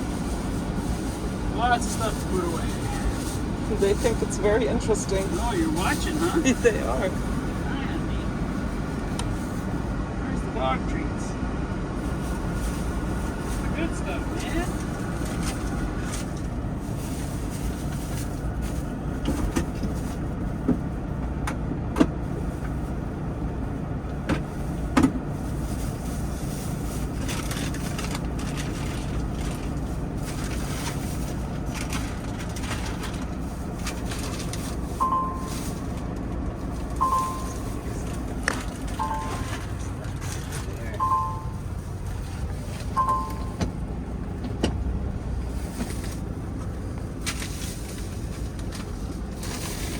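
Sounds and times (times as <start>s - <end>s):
truck engine idling hum: 0.0s - 49.9s
short high chirps: 39.0s - 39.6s, 41.0s - 41.6s, 43.0s - 43.6s.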